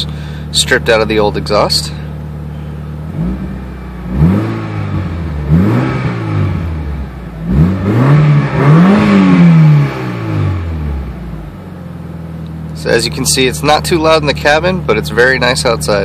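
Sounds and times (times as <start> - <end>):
car engine revving with deep growl: 0.0 - 16.0.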